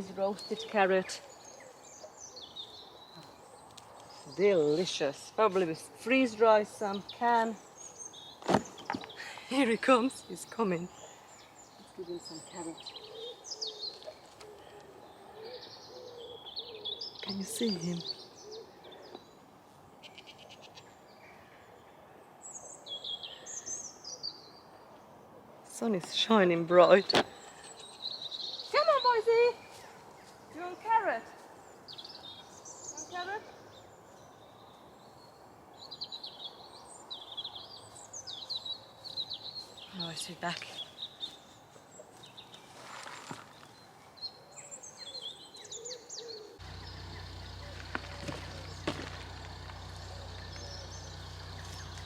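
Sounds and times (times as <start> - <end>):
birds chirping and singing: 0.0 - 24.8, 25.8 - 52.0
bird ticking trill: 46.6 - 52.0.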